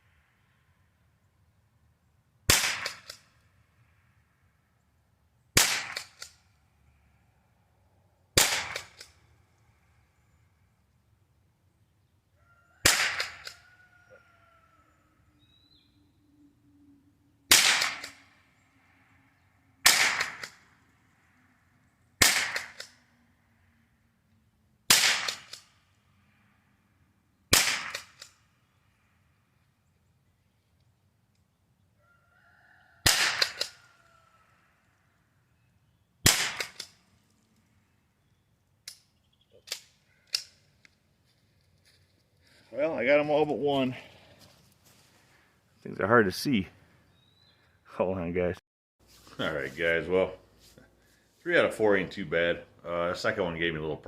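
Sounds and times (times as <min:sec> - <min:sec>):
rifle shots cracking: 0:02.5 - 0:03.2, 0:05.6 - 0:06.3, 0:08.4 - 0:09.1, 0:12.8 - 0:13.5, 0:17.5 - 0:18.3, 0:19.8 - 0:20.7, 0:22.2 - 0:23.0, 0:24.9 - 0:25.7, 0:27.5 - 0:28.3, 0:33.0 - 0:33.7, 0:36.2 - 0:37.0.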